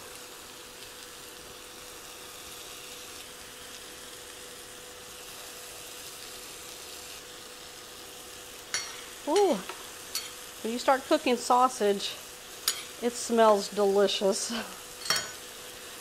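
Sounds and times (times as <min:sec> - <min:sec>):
food sizzling in a skillet: 0:00.0 - 0:16.0.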